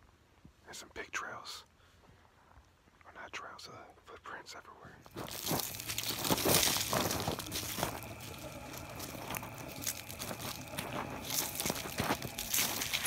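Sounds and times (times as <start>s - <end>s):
footsteps crunching on dirt: 5.0s - 13.0s.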